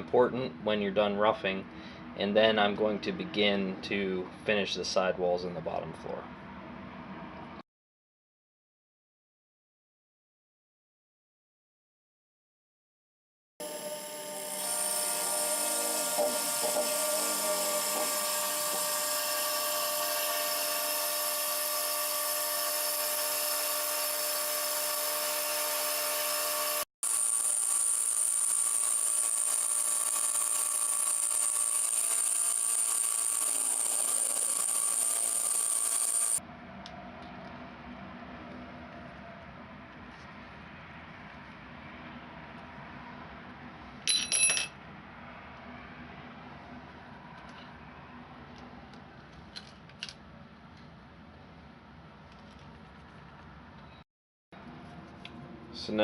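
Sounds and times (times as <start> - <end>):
milling machine whine: 13.6 - 36.4.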